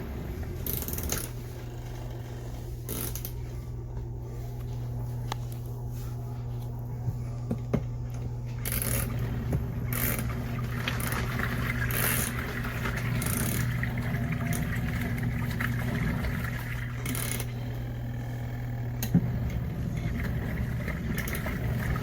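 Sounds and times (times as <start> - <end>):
washing machine motor hum: 0.0 - 22.0
water swishing: 9.1 - 17.0.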